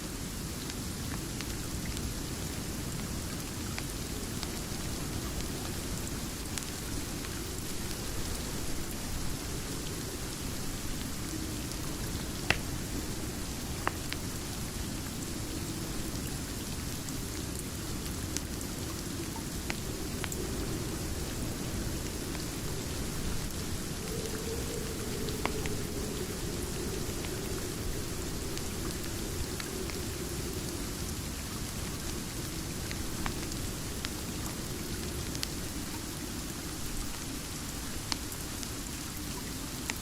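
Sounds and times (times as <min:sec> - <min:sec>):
steady rain: 0:00.0 - 0:40.0
wood fire crackling: 0:01.8 - 0:16.5.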